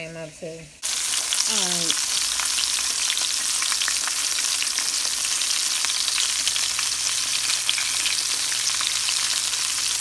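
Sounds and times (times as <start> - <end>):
mushroom pieces frying in oil: 0.7 - 10.0.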